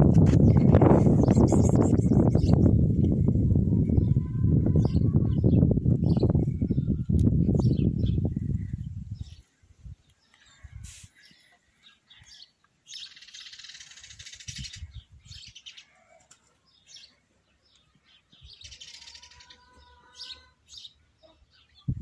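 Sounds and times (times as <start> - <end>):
faint birds chirping: 0.4 - 22.0
rapid high bird trilling: 13.0 - 14.9, 18.6 - 20.5.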